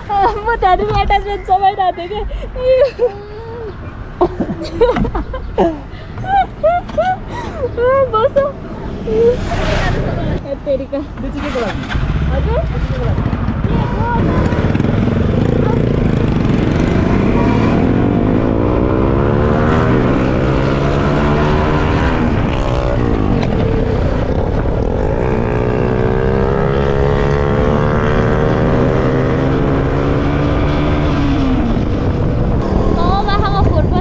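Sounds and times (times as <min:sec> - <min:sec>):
motorcycle engines accelerating: 0:11.1 - 0:34.0
wind rush on microphone: 0:30.6 - 0:34.0.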